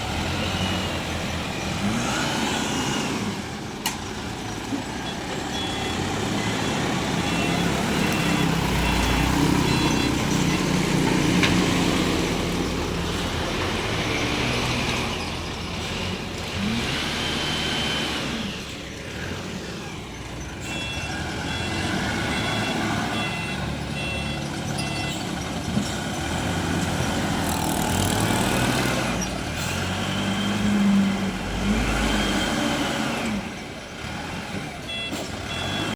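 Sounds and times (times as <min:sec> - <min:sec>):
diesel engine revving under load: 0:00.0 - 0:35.9
reversing alarm beeps: 0:05.0 - 0:10.8, 0:20.4 - 0:25.5, 0:34.8 - 0:35.9.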